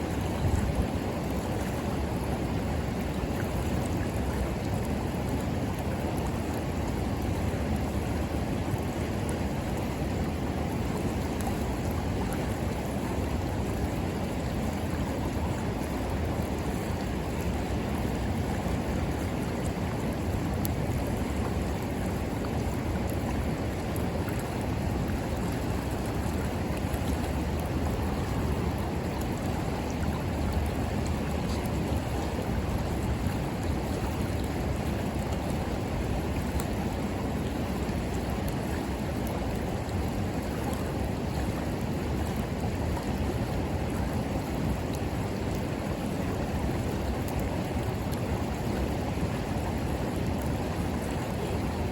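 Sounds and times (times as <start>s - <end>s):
river water rushing: 0.0s - 51.9s.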